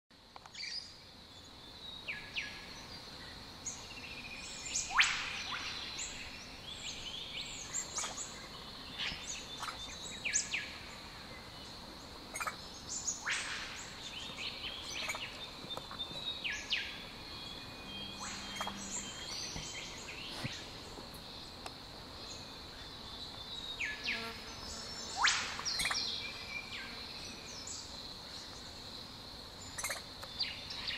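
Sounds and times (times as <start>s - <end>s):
birds whistling down-sweeping notes: 0.6s - 11.8s, 12.4s - 21.5s.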